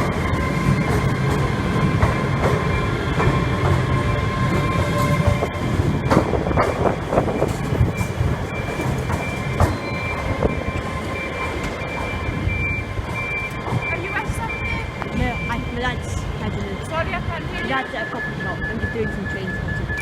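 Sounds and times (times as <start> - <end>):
train wheel clicks and knocks: 0.0 - 15.7
train rumbling: 0.0 - 20.0.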